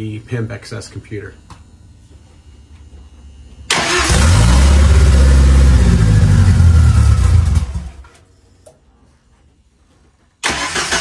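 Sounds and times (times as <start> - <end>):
car engine starting and running: 3.7 - 8.0, 10.4 - 11.0.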